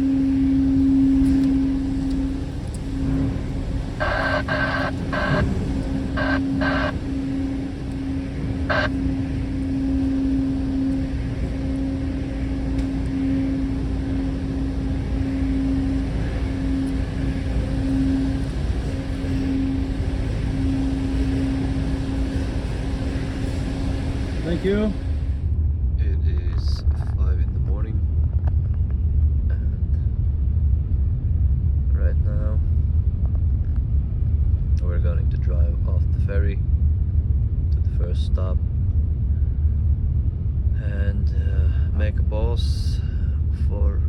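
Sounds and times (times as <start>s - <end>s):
low engine rumble: 0.0s - 44.0s
short electronic beeps: 4.0s - 9.1s.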